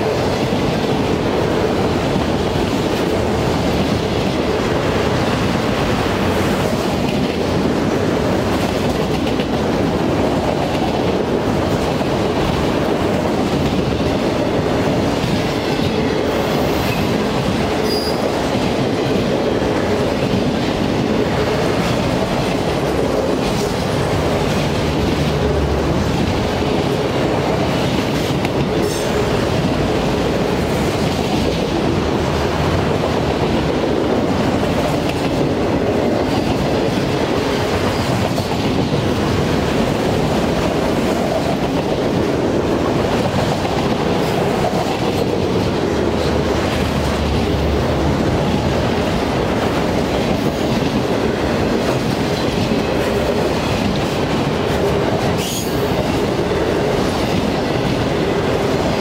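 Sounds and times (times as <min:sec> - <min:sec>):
freight train wheels rumbling: 0:00.0 - 0:59.0
faint high squeal: 0:17.8 - 0:18.2.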